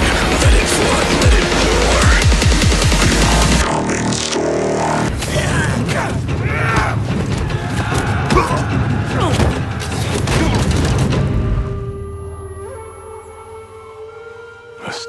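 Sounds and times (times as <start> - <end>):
dramatic music: 0.0 - 15.0
held musical drone: 11.4 - 15.0.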